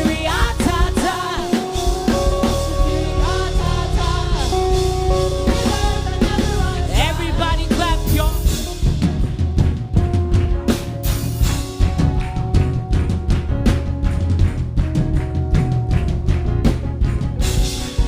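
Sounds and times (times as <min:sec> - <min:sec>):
person singing wordless vocal runs: 0:00.0 - 0:09.0
drum kit: 0:00.0 - 0:18.0
gospel worship band music: 0:00.0 - 0:18.0.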